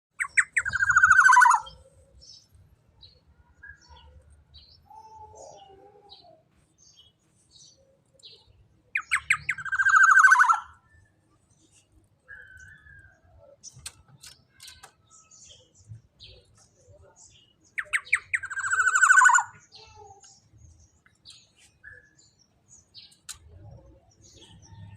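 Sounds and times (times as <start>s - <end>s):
bird harsh buzzy calls: 0.2s - 1.8s, 9.0s - 10.8s.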